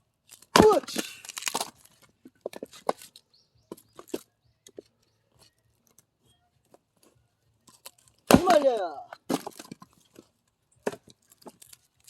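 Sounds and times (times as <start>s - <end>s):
axe splitting firewood: 0.2s - 4.8s, 7.7s - 12.0s.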